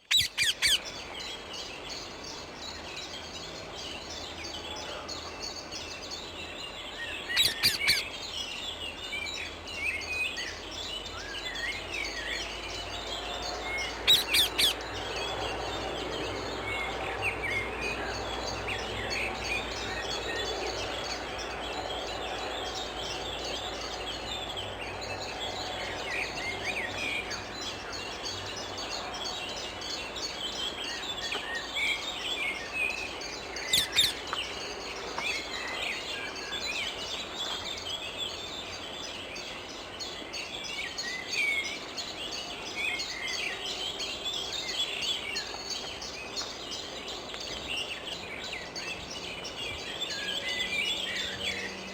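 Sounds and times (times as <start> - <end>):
parakeets screeching: 0.0 - 1.0, 7.4 - 8.1, 13.9 - 14.9, 33.6 - 34.3
birds twittering and chirping: 0.0 - 51.9.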